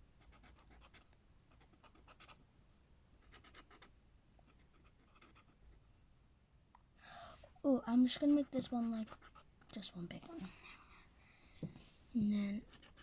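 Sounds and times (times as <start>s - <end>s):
crayon scratching on paper: 3.2s - 5.6s, 8.1s - 10.6s, 12.6s - 13.0s.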